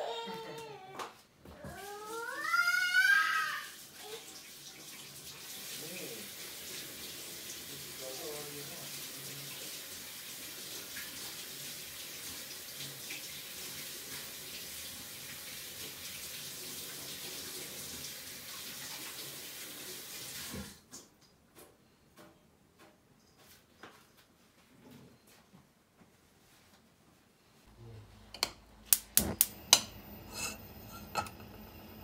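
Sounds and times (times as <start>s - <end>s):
tap water running into sink: 1.8s - 21.1s.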